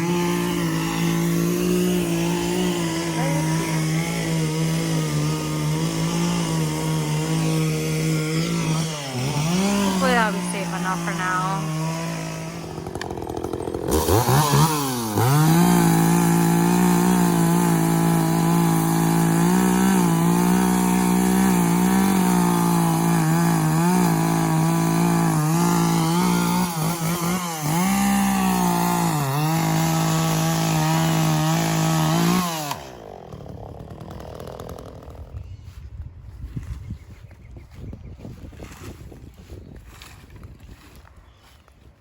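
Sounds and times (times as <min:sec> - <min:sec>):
chainsaw revving: 0:00.0 - 0:35.5.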